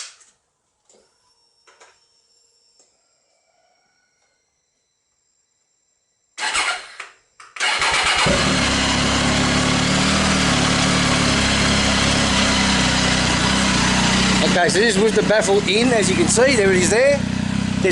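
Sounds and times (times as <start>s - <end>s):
motorcycle engine starting and idling: 6.4s - 17.9s.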